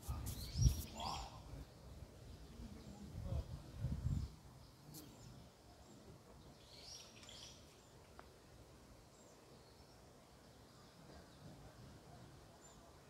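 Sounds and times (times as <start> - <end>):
faint high bird chirps: 0.0 - 3.0.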